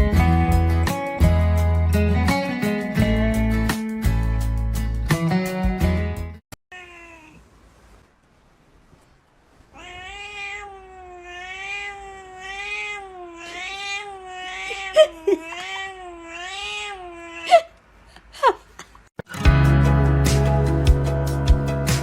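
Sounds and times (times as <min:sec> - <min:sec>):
music: 0:00.0 - 0:06.4, 0:19.3 - 0:22.0
cat yowling: 0:06.7 - 0:07.5, 0:09.7 - 0:17.7.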